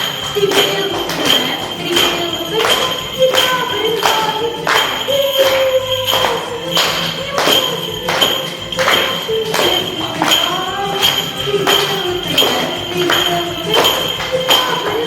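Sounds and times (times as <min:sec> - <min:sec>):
backing track with percussive beat: 0:00.0 - 0:15.0.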